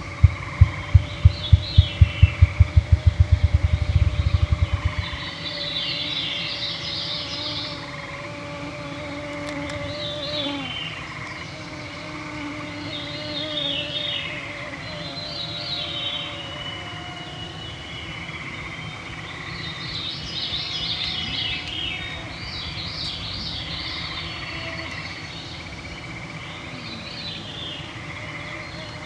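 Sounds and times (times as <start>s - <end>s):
continuous trill: 0.0s - 5.3s
birds singing: 0.0s - 8.0s, 9.1s - 29.0s
mosquitoes whining: 0.0s - 29.0s.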